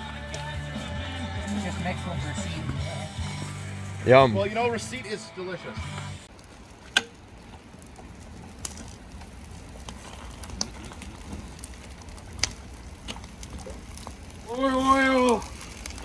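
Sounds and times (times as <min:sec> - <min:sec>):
campfire crackling: 0:00.0 - 0:16.0
sharp pops from fire: 0:06.0 - 0:16.0.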